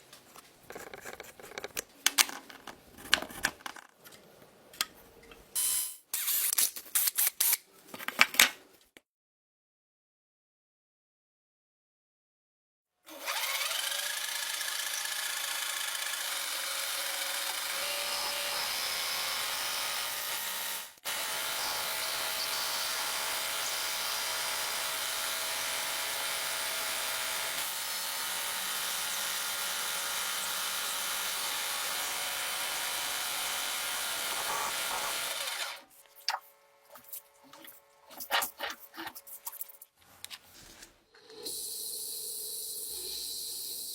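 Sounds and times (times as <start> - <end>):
power tool grinding: 13.1 - 40.0.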